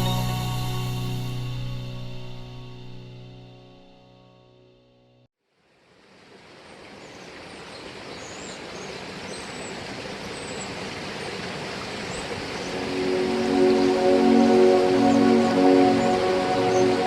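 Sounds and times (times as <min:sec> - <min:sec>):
music: 0:00.0 - 0:05.3, 0:12.7 - 0:17.0
outdoor background noise: 0:05.4 - 0:17.0.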